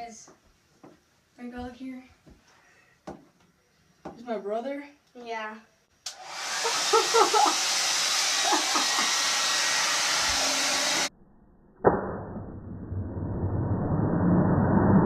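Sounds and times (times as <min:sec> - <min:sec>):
blow dryer blowing: 0:06.1 - 0:11.1
person crying out: 0:06.7 - 0:07.7.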